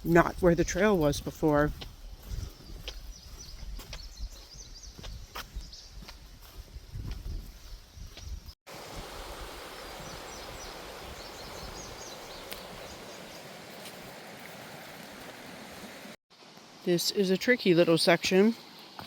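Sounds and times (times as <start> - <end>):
footsteps: 0.0 - 8.5, 12.5 - 15.4
wind on microphone: 0.0 - 13.1
river water rushing: 8.7 - 16.2.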